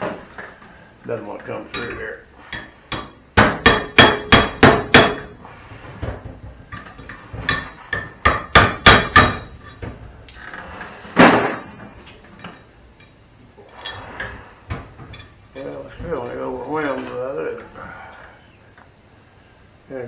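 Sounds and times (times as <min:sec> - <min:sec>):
hammer striking steel: 0:02.5 - 0:05.3, 0:07.5 - 0:09.5.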